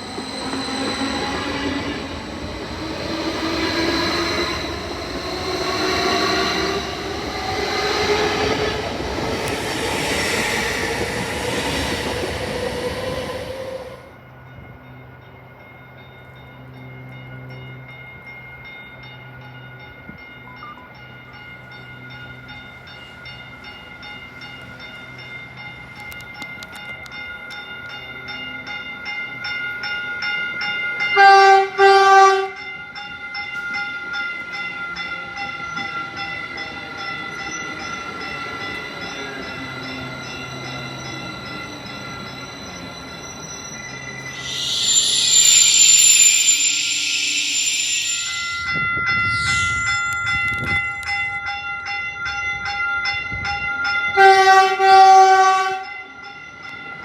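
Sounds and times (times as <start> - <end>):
train passing: 0.0 - 20.2, 31.2 - 52.6
train horn blasts: 31.2 - 32.6, 54.2 - 55.9
bell ringing: 40.5 - 52.0.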